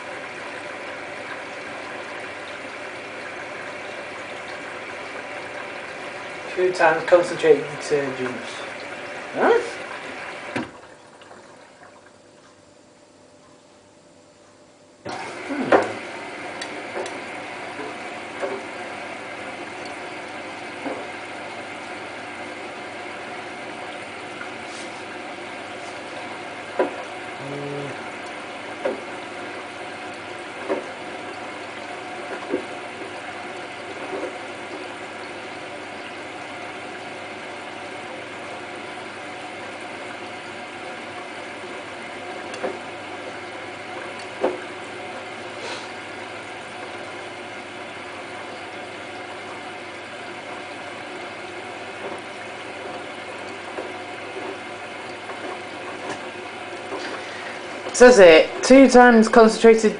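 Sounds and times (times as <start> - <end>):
washing machine filling with water: 0.0 - 14.2, 14.8 - 59.9
short low tone: 27.4 - 28.0.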